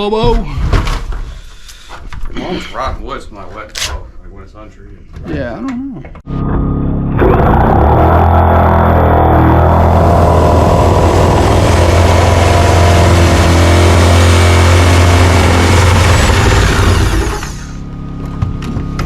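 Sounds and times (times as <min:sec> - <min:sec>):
engine-like running hum: 0:06.3 - 0:19.0.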